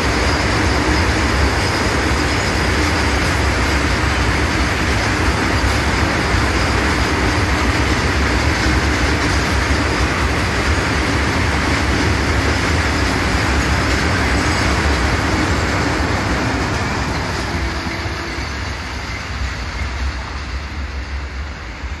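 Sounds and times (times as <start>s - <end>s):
freight train rumbling past: 0.0s - 22.0s.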